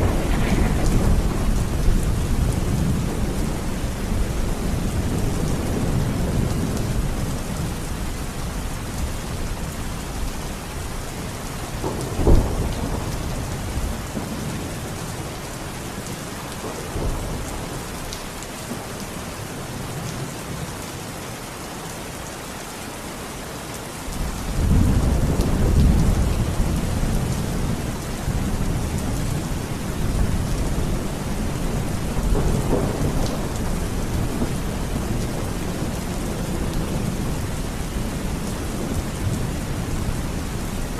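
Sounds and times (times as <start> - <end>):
thunder clap: 0.0 - 4.3, 31.7 - 37.3
rolling thunder rumble: 0.0 - 8.0, 11.7 - 15.2, 24.1 - 40.9
heavy rain hissing: 0.0 - 21.5, 22.7 - 40.9.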